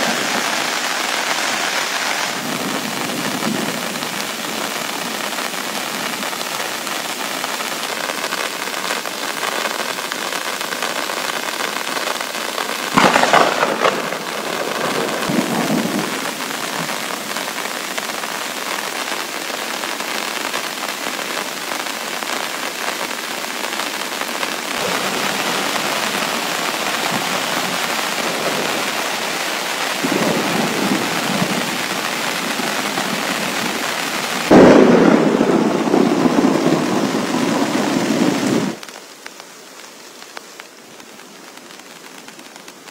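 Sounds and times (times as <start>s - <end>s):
heavy rain falling: 0.0s - 42.9s
loud thunderclap: 12.9s - 16.9s, 30.0s - 31.8s, 34.5s - 38.8s
low thunder rumbling: 12.9s - 16.9s, 34.4s - 38.8s.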